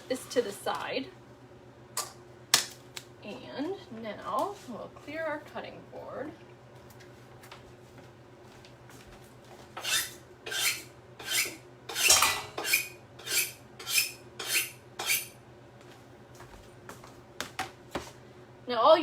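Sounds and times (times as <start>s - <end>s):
cutting board scraping: 9.8s - 15.3s.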